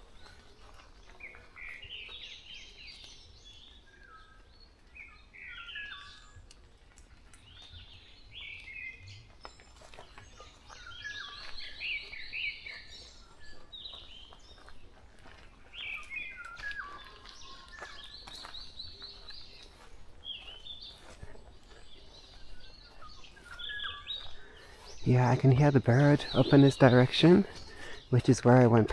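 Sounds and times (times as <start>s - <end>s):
birds singing: 0.0s - 28.9s.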